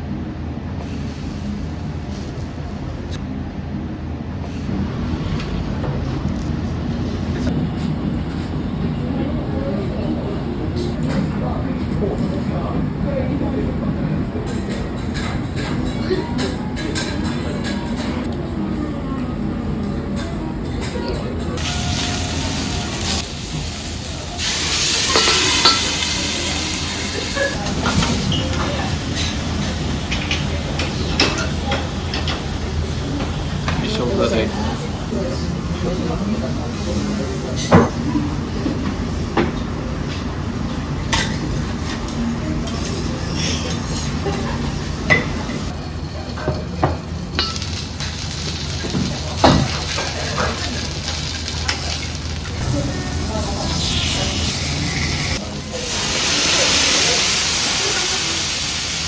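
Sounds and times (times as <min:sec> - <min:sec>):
utensils and dishes clinking: 0:14.4 - 0:18.4, 0:19.8 - 0:35.2, 0:41.1 - 0:58.4
food sizzling on a griddle: 0:21.6 - 0:30.4, 0:47.3 - 0:59.0.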